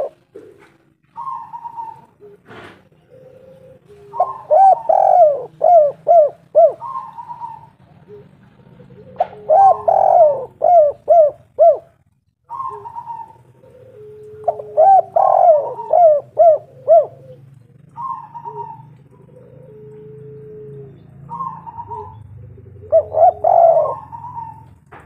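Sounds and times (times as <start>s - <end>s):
dove cooing: 0.0s - 25.0s.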